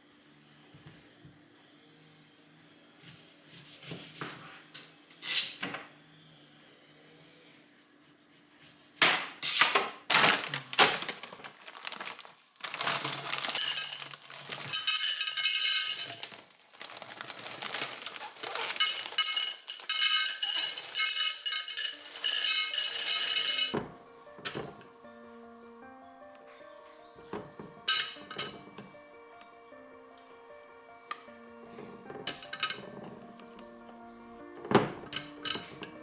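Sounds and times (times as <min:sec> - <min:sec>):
glass scraping and rattling: 0:12.7 - 0:16.4, 0:17.5 - 0:24.9, 0:27.3 - 0:29.0, 0:31.1 - 0:36.0
glass and kitchenware clinking: 0:12.8 - 0:16.4, 0:17.5 - 0:24.9, 0:27.3 - 0:29.0, 0:31.1 - 0:36.0.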